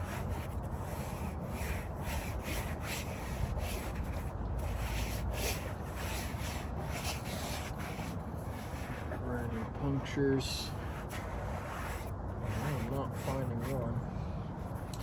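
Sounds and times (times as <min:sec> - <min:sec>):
hand rubbing inside rubber tire: 0:00.0 - 0:14.0.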